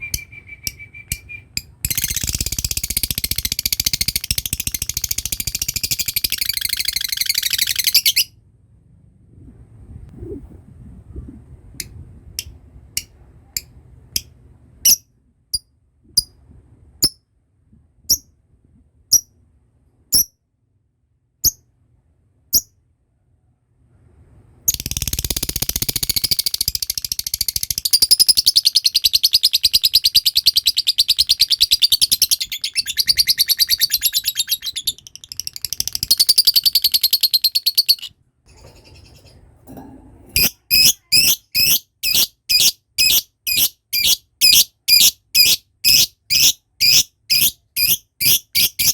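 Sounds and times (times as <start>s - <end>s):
lovebird sharp chirps: 0.0s - 8.3s, 24.7s - 38.1s, 40.4s - 48.9s
lovebird rapid chattering trill: 1.9s - 8.3s, 24.7s - 38.1s.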